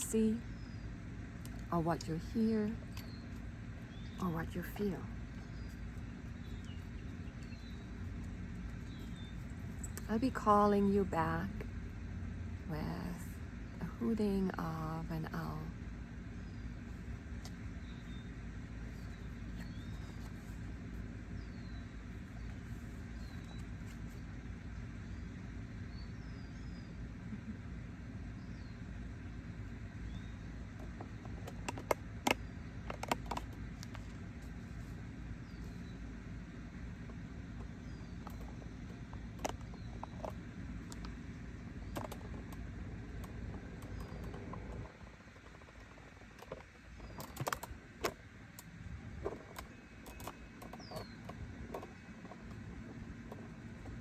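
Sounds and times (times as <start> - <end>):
small birds chirping: 0.0 - 54.0
sharp clicks: 37.6 - 54.0.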